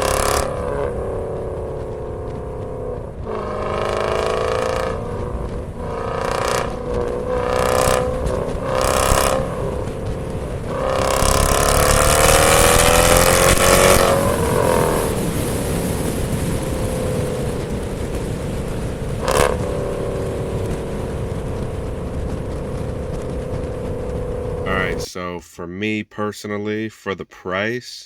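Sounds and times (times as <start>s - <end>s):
car engine revving: 0.0s - 25.1s.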